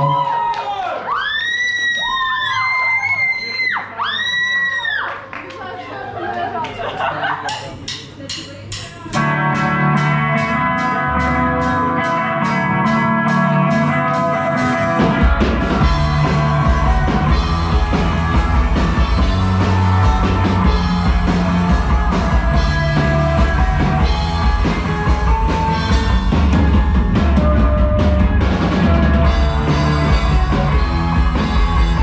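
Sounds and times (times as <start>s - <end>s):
drum kit: 7.5s - 32.0s
bass guitar: 9.0s - 32.0s
guitar chords: 9.1s - 32.0s.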